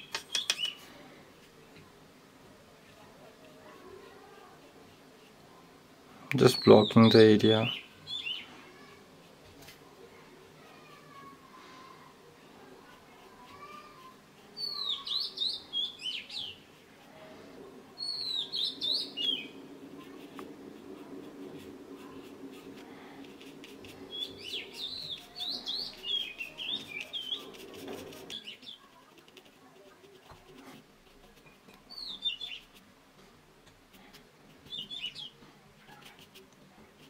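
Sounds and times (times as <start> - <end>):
bird chirping: 0.0 - 0.8, 6.4 - 8.5, 14.6 - 16.6, 18.0 - 19.6, 24.1 - 27.6, 31.9 - 32.7, 34.6 - 35.4.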